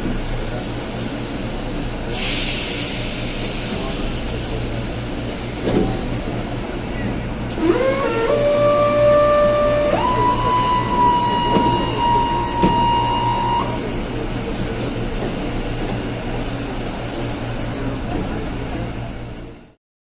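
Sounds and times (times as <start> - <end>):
train rumble: 0.0 - 19.8
train door-closing warning tone: 6.9 - 15.0.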